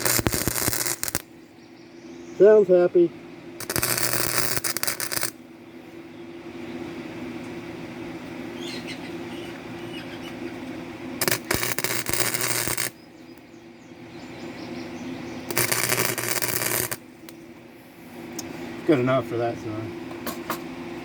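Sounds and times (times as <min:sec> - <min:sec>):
crackling welding arc: 0:00.0 - 0:01.3, 0:03.6 - 0:05.4, 0:11.2 - 0:13.0, 0:15.5 - 0:17.4
steady low hum: 0:00.0 - 0:21.0.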